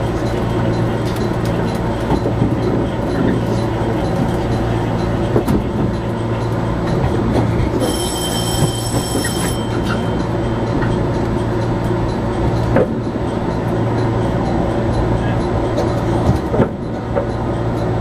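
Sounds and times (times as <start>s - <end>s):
electric train rumble and hum: 0.0s - 18.0s
high squeal from running gear: 7.8s - 10.1s.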